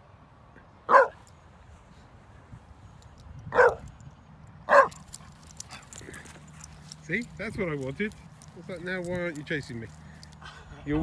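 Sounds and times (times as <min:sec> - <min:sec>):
dog barking: 0:00.9 - 0:01.2, 0:03.6 - 0:03.8, 0:04.7 - 0:05.0.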